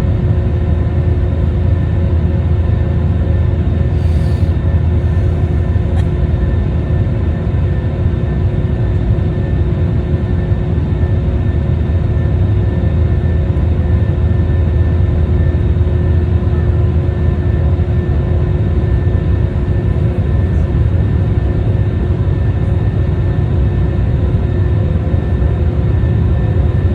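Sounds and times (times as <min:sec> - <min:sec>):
jet engines rumbling: 0:00.0 - 0:13.0, 0:13.7 - 0:26.9.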